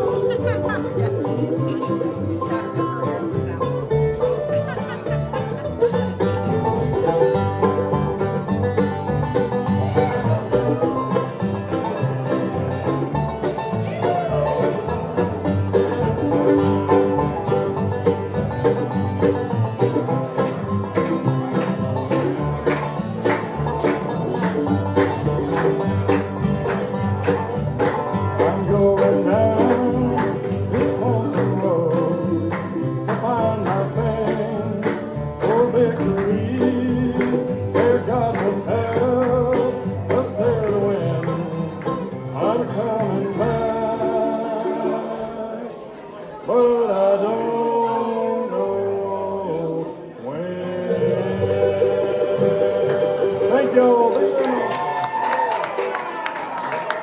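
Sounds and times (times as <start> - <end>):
fast banjo picking: 0.0 - 45.5, 50.9 - 57.0
bluegrass band playing: 0.0 - 46.7, 50.6 - 57.0
guitar: 0.0 - 57.0.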